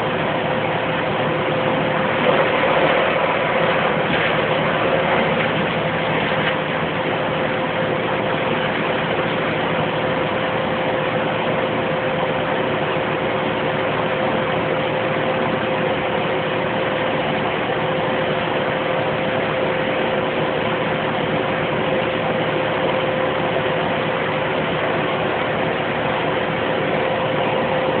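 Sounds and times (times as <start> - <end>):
wood chipper running: 0.0 - 28.0.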